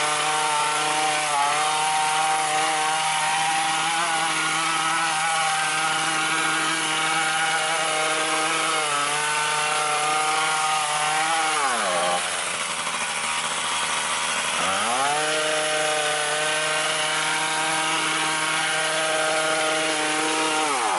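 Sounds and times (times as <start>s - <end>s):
hedge trimmer engine running: 0.0s - 20.9s.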